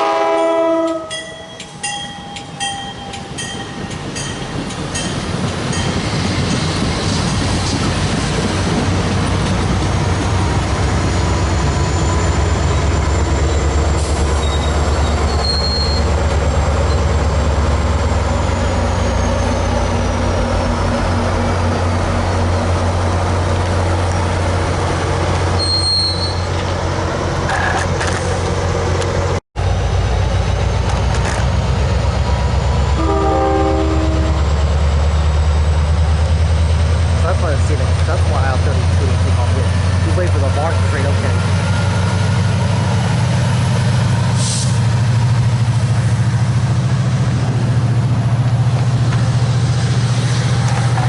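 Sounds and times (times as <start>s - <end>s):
locomotive horn toot: 0.0s - 1.3s, 33.0s - 34.5s
diesel locomotive rumbling: 0.0s - 51.0s.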